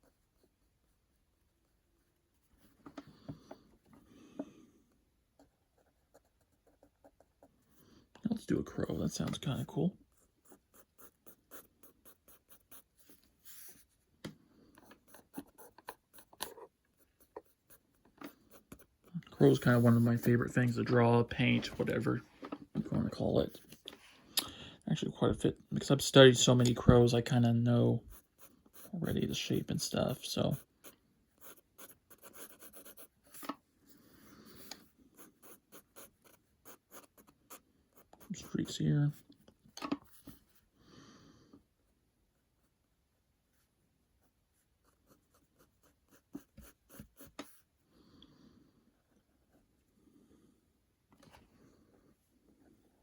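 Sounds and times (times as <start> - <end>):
pen scratching on paper: 10.1 - 14.0, 14.8 - 20.5, 28.0 - 29.7, 31.4 - 33.4, 34.5 - 38.5, 44.6 - 47.6.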